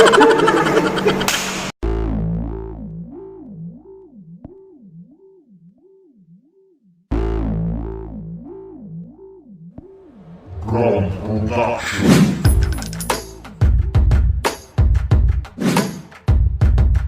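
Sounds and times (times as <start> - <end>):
warbling synthesizer tone: 0.0 - 5.5
synthesizer deep bass hit: 1.8 - 5.2, 7.1 - 12.7.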